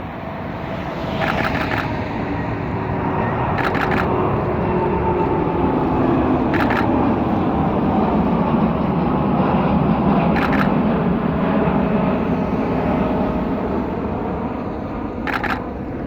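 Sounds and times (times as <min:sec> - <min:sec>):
jet airliner taking off: 0:00.0 - 0:16.0
camera shutter bursts: 0:01.2 - 0:02.0, 0:03.6 - 0:04.1, 0:06.5 - 0:06.9, 0:10.4 - 0:10.7, 0:15.3 - 0:15.6.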